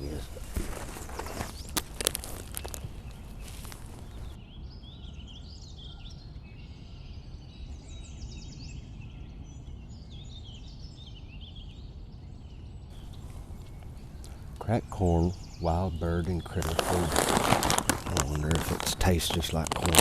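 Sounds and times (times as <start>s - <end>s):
noisy rustle: 0.0s - 4.4s, 12.9s - 20.0s
songbirds chirping and trilling: 0.0s - 20.0s
low background rumble: 7.8s - 20.0s.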